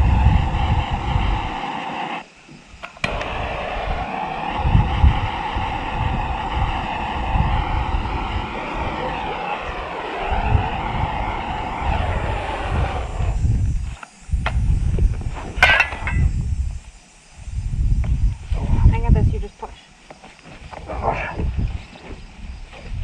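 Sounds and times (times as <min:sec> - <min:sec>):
wind buffeting microphone: 0:00.0 - 0:01.7, 0:02.8 - 0:19.8, 0:20.6 - 0:23.0
engine drone: 0:00.0 - 0:02.2, 0:02.9 - 0:14.0.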